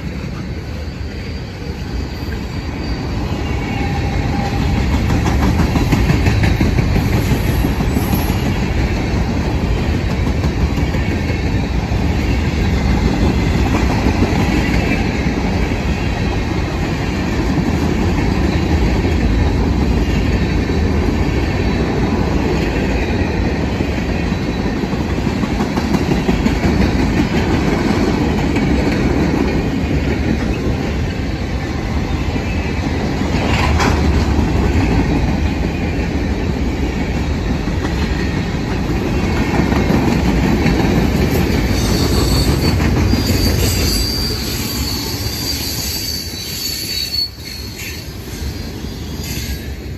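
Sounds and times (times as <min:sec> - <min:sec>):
train wheels clacking over rail joints: 0:03.7 - 0:15.7, 0:22.5 - 0:31.1, 0:33.1 - 0:36.0, 0:37.1 - 0:46.0.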